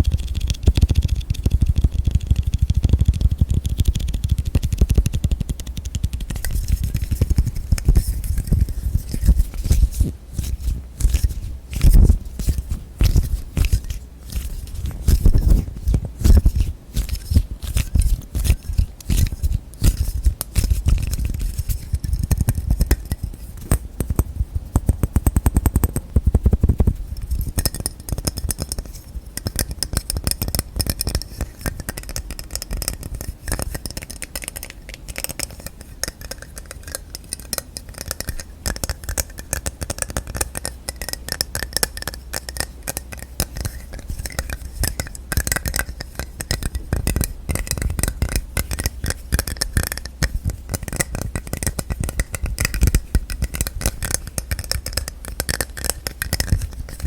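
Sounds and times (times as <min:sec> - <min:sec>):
hands tapping on containers: 0:27.5 - 0:57.0.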